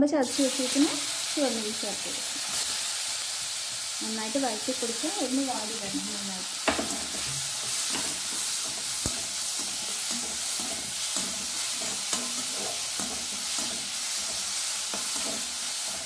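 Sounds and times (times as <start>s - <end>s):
shallots sizzling in hot oil: 0.0s - 16.0s
metal spatula scraping pan: 6.8s - 16.0s.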